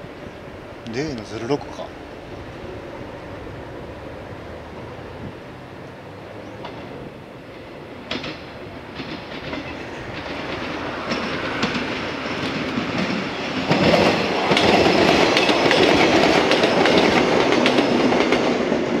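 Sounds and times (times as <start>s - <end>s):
wheels clacking over rail joints: 6.4s - 19.0s.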